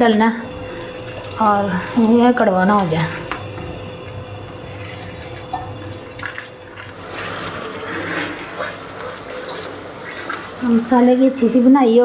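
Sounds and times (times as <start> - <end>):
paste sizzling in a wok: 0.0 - 11.9
spatula scraping a pan: 6.3 - 11.7.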